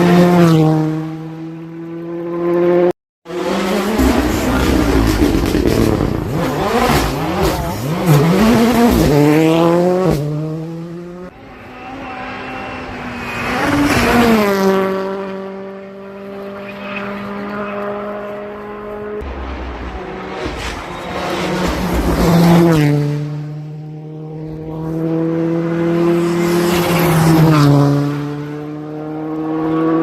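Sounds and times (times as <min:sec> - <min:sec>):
rally car engine revving hard: 0:02.2 - 0:18.1, 0:21.2 - 0:30.0
car passing by: 0:08.5 - 0:30.0.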